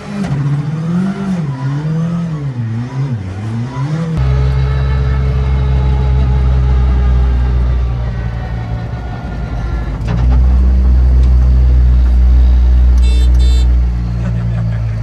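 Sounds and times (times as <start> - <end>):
car engine droning: 0.0 - 15.0
high squeal: 4.2 - 13.8.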